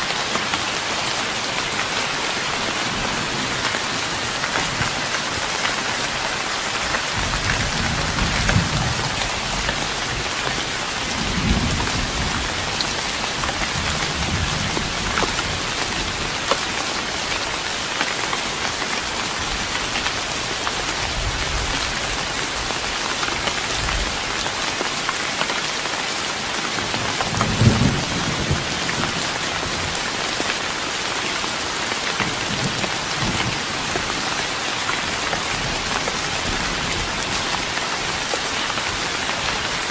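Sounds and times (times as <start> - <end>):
rain on wooden deck: 0.0 - 39.9.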